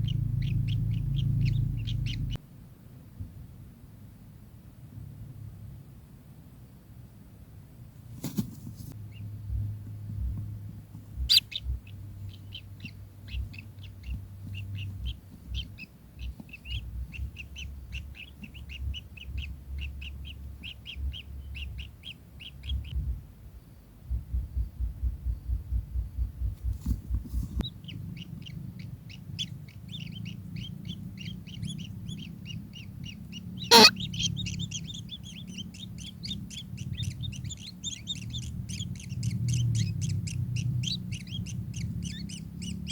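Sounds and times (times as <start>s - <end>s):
low rhythmic thumps: 9.2s - 22.0s, 22.7s - 23.3s, 24.1s - 27.6s
kingfisher calling: 30.0s - 36.4s.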